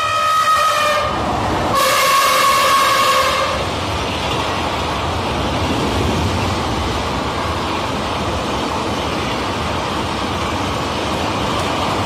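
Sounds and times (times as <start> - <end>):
train horn steady note: 0.0 - 3.6
rumble of passing train coaches: 0.0 - 12.0.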